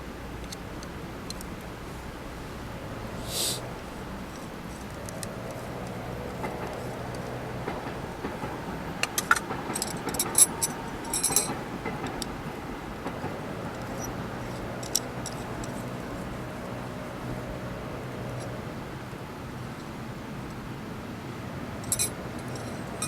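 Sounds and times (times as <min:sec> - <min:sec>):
low background noise: 0:00.0 - 0:23.0
metallic clinking and jingling: 0:09.2 - 0:11.5, 0:21.8 - 0:23.0.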